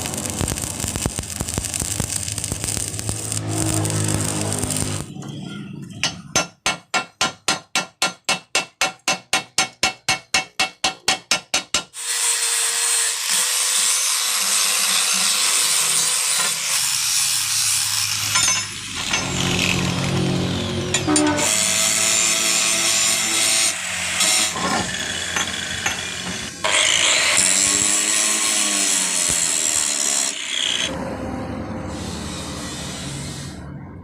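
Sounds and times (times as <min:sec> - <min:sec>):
power tool running: 0:00.0 - 0:05.1, 0:12.0 - 0:30.9.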